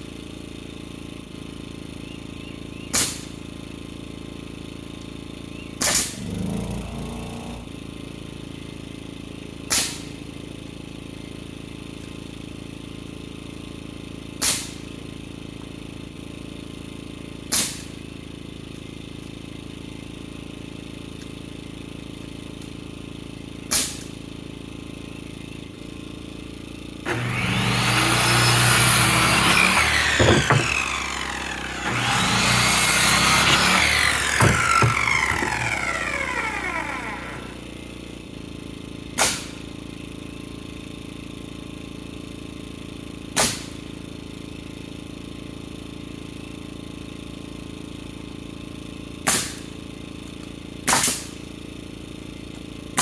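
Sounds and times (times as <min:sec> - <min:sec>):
small engine hum: 0:00.0 - 0:53.0
circular saw cutting lumber: 0:05.8 - 0:07.8, 0:27.0 - 0:38.4
nail gun shots: 0:17.5 - 0:17.9, 0:29.3 - 0:37.5, 0:39.2 - 0:39.6, 0:43.4 - 0:43.8, 0:49.3 - 0:49.7, 0:50.9 - 0:51.4.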